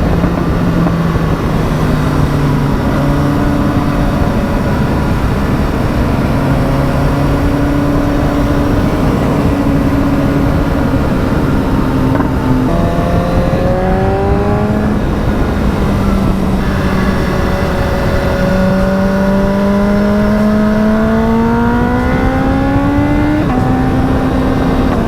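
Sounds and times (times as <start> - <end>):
motorcycle engine accelerating: 0.0 - 25.0
steady rushing noise: 0.0 - 25.0.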